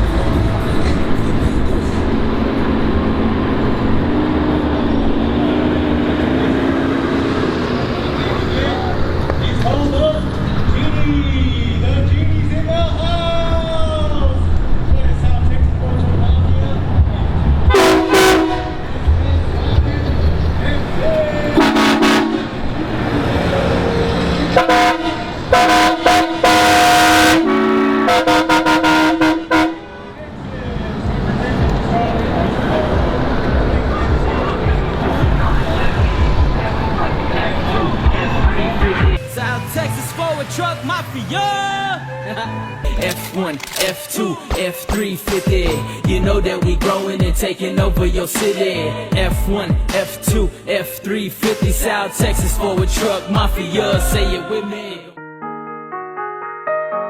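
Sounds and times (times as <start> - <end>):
motor vehicle rumbling: 0.0 - 43.8
vehicle horns honking: 17.7 - 19.1, 21.4 - 30.3.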